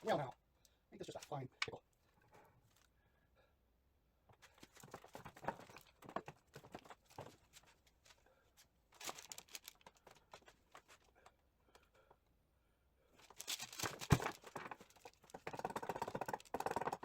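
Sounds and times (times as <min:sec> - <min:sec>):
gearbox parts clicking and rattling: 0:13.3 - 0:17.0.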